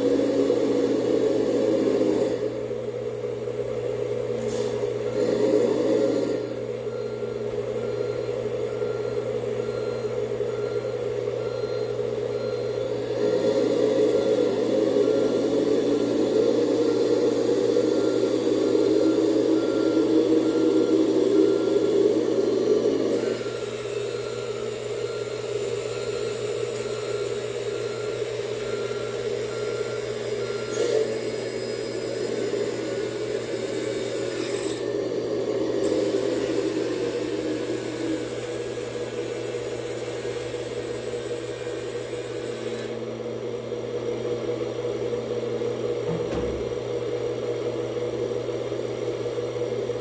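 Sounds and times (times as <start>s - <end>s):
hydraulic pump and motors whirring: 0.0s - 50.0s
thin high whine: 4.4s - 43.2s.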